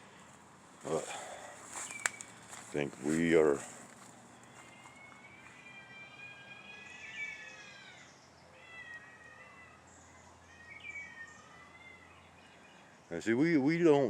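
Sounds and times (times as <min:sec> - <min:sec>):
distant cats yowling: 0:00.9 - 0:01.6, 0:04.4 - 0:12.6.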